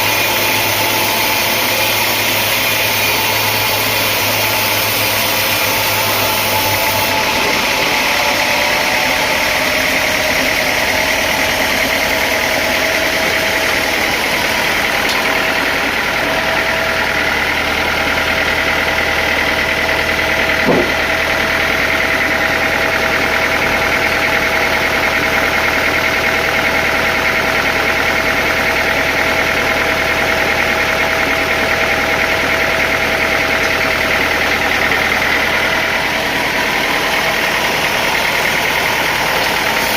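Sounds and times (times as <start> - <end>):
sawmill motor whine: 0.0 - 39.9
short knock: 20.6 - 21.1.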